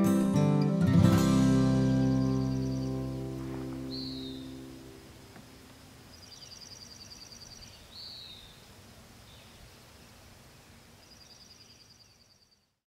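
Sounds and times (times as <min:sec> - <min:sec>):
background hiss: 0:00.0 - 0:12.8
downslurred bird call: 0:01.9 - 0:05.8
bird trilling: 0:02.0 - 0:04.8.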